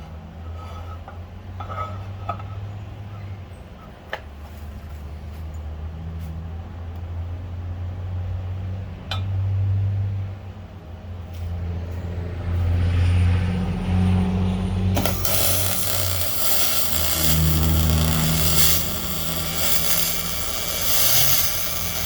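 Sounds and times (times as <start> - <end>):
toy excavator motor humming: 15.0 - 22.0.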